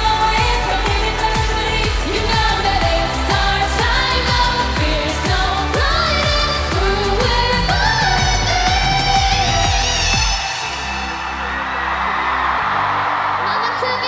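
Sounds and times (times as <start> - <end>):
steady kick drum beat: 0.0 - 10.4
synth backing: 0.0 - 14.0.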